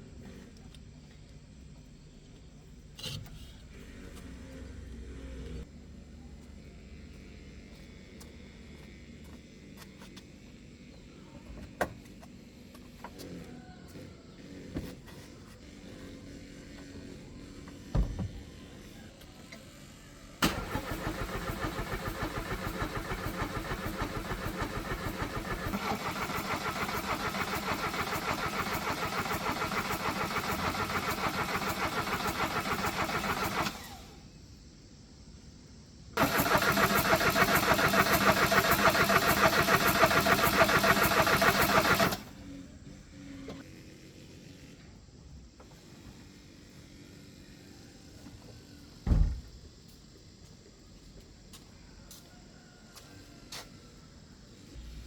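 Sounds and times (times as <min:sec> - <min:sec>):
car engine cranking on starter: 0:20.4 - 0:34.2, 0:36.2 - 0:42.4.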